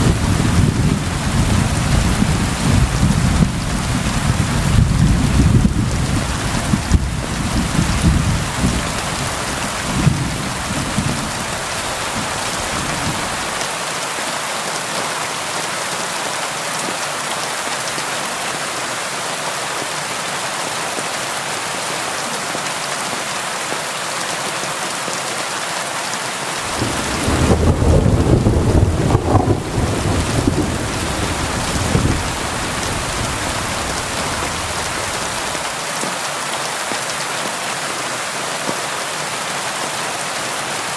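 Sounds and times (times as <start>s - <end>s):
low rolling thunder: 0.0s - 13.6s, 26.7s - 35.6s
rain against a window: 0.0s - 13.8s, 26.6s - 37.6s.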